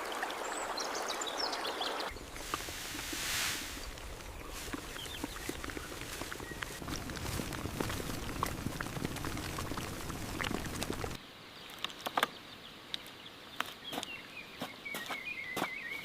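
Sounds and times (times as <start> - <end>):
rustling: 2.1 - 11.2.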